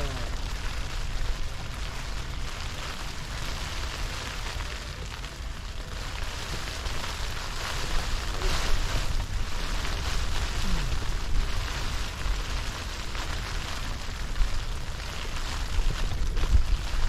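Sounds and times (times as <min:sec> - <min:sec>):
strong wind buffeting microphone: 0:06.4 - 0:17.0.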